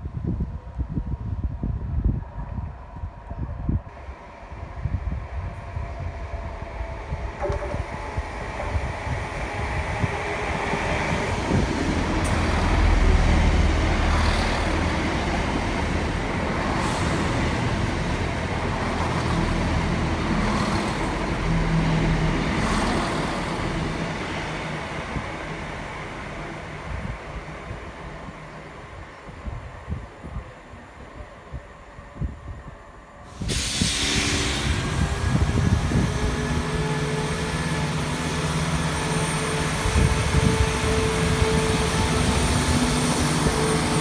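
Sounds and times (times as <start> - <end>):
diesel train rumbling past: 3.9 - 44.0
wheels clicking on rail: 7.4 - 24.2.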